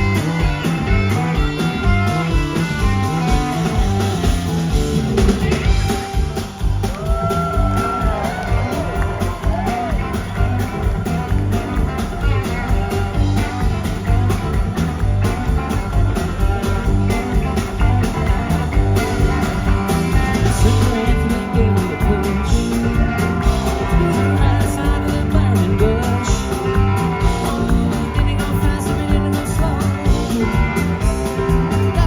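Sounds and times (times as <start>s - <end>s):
bass guitar: 0.0s - 32.0s
electric lead guitar: 0.0s - 32.0s
steady drum beat: 0.0s - 32.0s.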